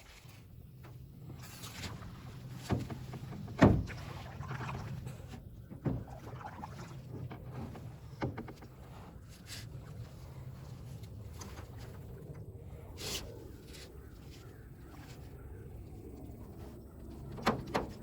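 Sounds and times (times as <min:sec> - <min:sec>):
water swishing: 0:00.0 - 0:17.1
paddle knocking canoe hull: 0:01.4 - 0:09.2.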